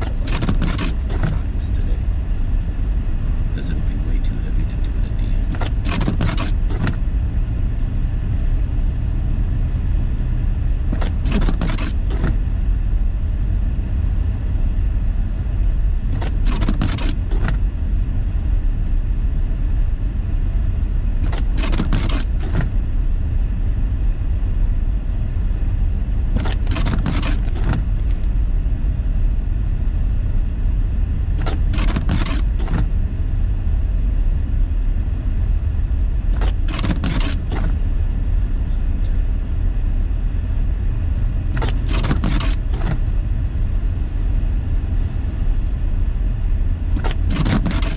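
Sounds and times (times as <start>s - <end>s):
windshield wipers thumping: 0.0s - 1.8s, 5.4s - 7.2s, 10.9s - 12.4s, 16.1s - 17.7s, 21.2s - 22.9s, 26.3s - 28.3s, 31.4s - 33.0s, 36.3s - 37.9s, 41.5s - 43.2s, 46.9s - 47.9s
engine and tyre rumble: 0.0s - 47.9s.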